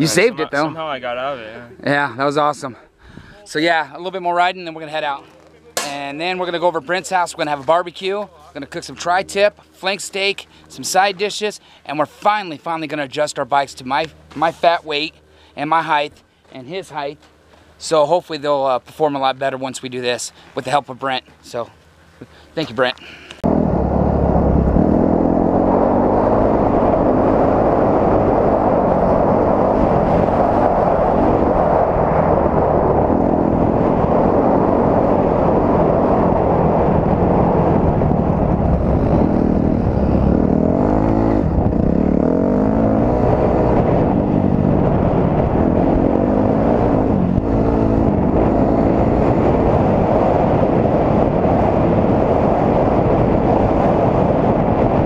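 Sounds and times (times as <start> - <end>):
dirt bike engine revving: 23.4 - 55.0
wind rushing on microphone: 23.4 - 55.0.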